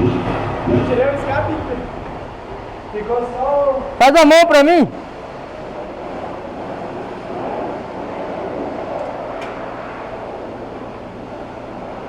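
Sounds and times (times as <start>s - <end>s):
wind noise on microphone: 5.0s - 12.0s.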